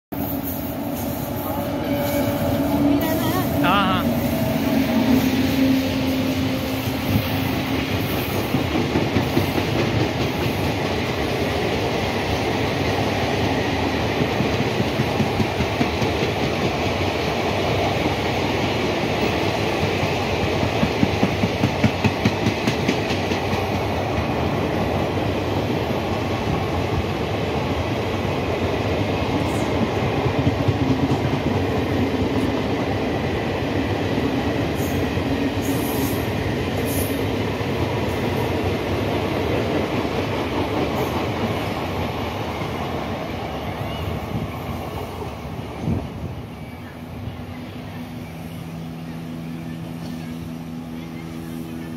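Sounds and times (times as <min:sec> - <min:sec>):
train wheels rumbling on rails: 0:00.1 - 0:51.9
clickety-clack over rail joints: 0:07.6 - 0:32.7, 0:33.8 - 0:43.2.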